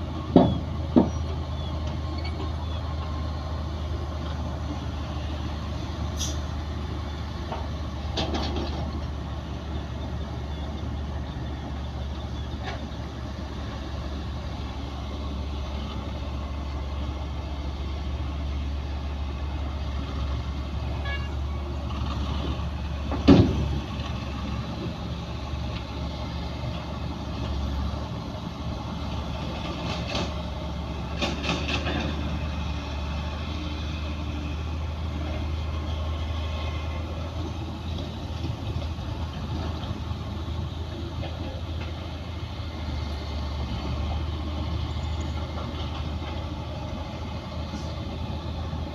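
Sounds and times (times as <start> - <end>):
heavy machinery diesel rumble: 0.0 - 48.9.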